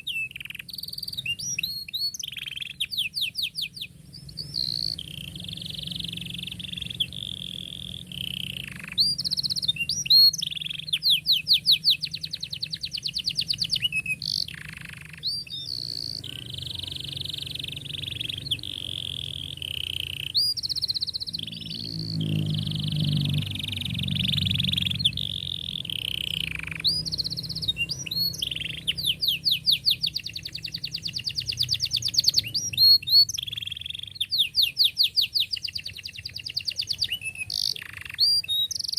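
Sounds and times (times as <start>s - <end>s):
canary singing trills: 0.0s - 38.9s
low hum: 3.4s - 32.8s.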